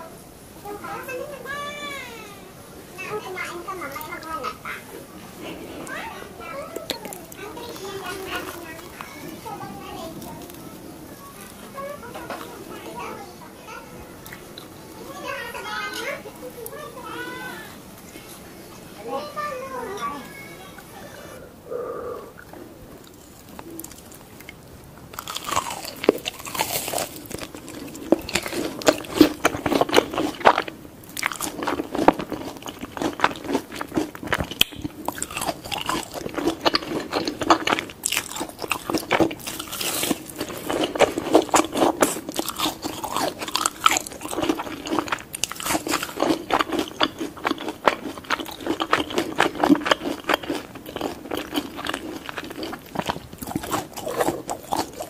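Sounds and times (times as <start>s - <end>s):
child crunching crispy skin: 5.4s - 13.1s, 22.4s - 55.0s.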